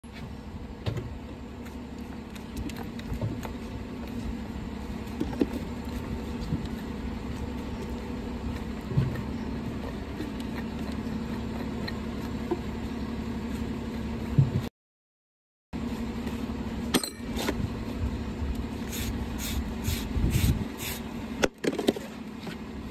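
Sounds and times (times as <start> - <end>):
low mechanical hum: 0.0 - 14.7, 15.8 - 22.9.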